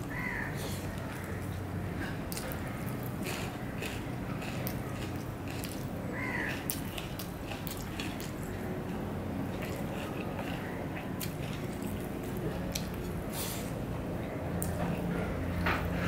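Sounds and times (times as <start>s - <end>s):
crow cawing: 0.1s - 1.4s, 6.1s - 6.6s
chewing rice: 0.6s - 13.9s.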